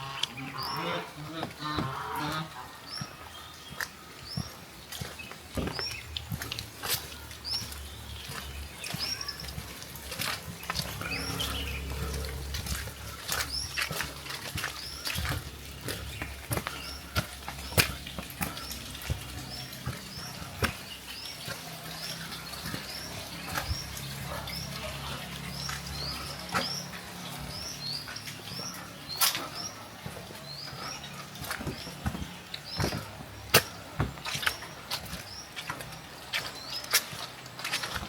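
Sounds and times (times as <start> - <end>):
water dripping taps: 1.4 - 38.0.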